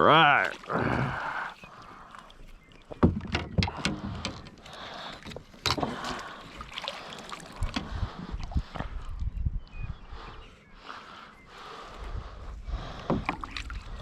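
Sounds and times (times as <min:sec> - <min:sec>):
gear knocking against kayak hull: 0:02.9 - 0:04.6.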